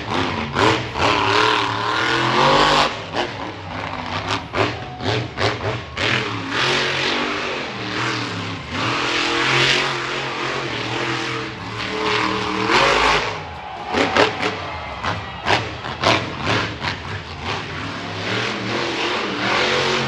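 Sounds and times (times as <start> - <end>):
monster truck engine revving hard: 0.0 - 20.0.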